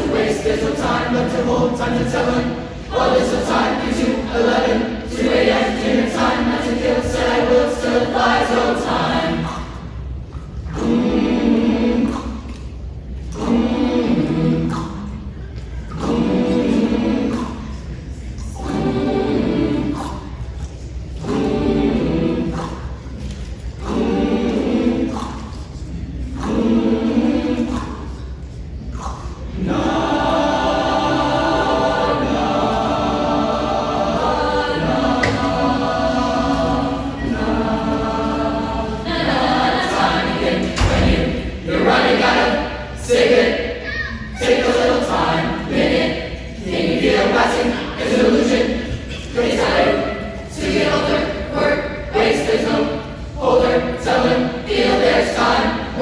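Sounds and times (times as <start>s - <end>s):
choir singing: 0.0s - 56.0s
low thump: 40.8s - 41.6s.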